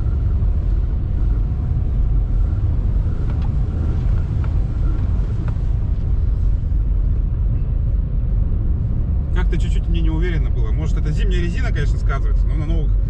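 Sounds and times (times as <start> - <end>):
car engine running: 0.0 - 13.0
road and tyre rumble: 0.0 - 13.0.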